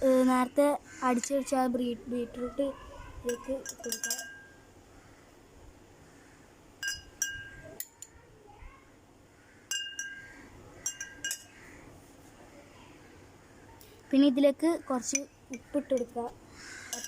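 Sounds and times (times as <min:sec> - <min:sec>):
metal spoon clinking against glass: 0:03.3 - 0:04.6, 0:06.8 - 0:08.1, 0:09.7 - 0:11.6.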